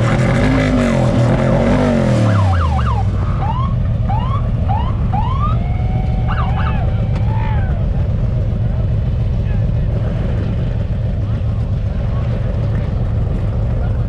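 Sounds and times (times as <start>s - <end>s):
car engine revving: 0.0s - 14.0s
siren-like whoops: 2.2s - 8.0s.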